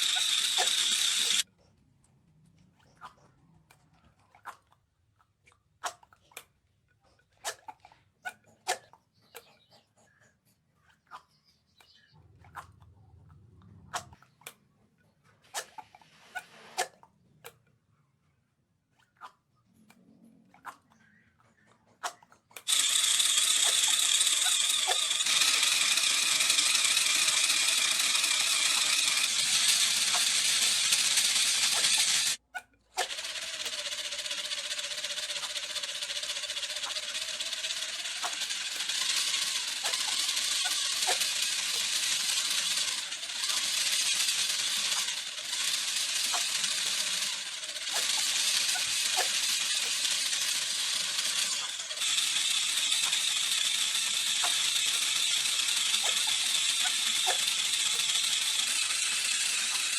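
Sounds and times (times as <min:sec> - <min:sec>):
power tool rattling buzz: 0:00.0 - 0:01.4, 0:22.7 - 0:32.4, 0:33.0 - 0:59.9.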